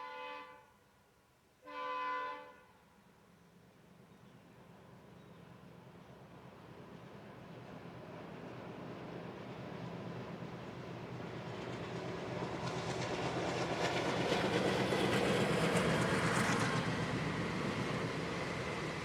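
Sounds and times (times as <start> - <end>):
train passing: 3.9 - 19.0.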